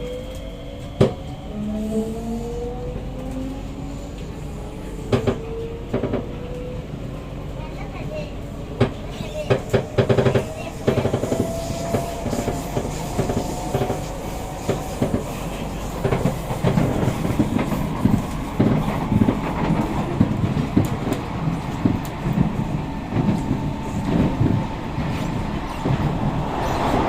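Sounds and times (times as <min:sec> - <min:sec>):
train bogie knocks and creaks: 0:08.8 - 0:15.4.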